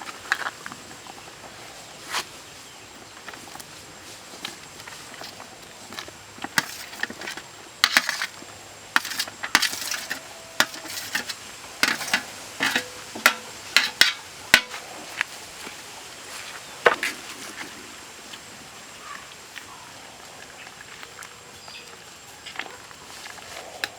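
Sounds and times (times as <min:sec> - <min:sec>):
utensils knocking and clinking: 0:06.4 - 0:08.4, 0:09.0 - 0:14.8
utensils scraping: 0:06.4 - 0:15.2.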